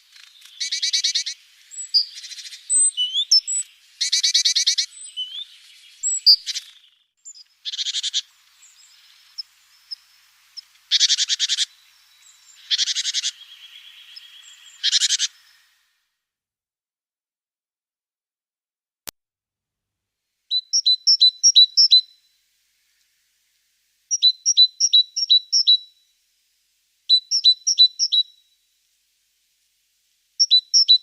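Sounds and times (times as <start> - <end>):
songbirds buzzy trills: 0.0 - 16.0, 20.5 - 26.2, 27.0 - 28.6, 30.4 - 31.0
thin high whistled bird notes: 0.0 - 16.0, 20.5 - 23.2, 24.1 - 26.1, 27.1 - 28.6, 30.4 - 31.0.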